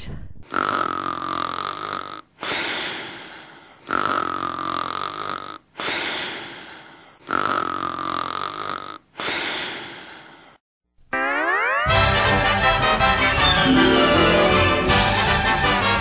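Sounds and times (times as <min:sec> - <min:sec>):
person snoring with whistle: 0:07.2 - 0:09.8
rising pitch glide: 0:13.2 - 0:15.8.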